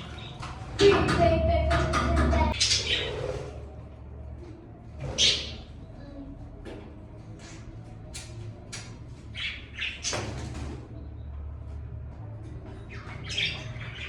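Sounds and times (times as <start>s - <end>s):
budgies chirping: 0.0s - 0.6s, 2.3s - 3.5s, 5.0s - 5.7s, 9.3s - 11.2s, 12.8s - 14.0s.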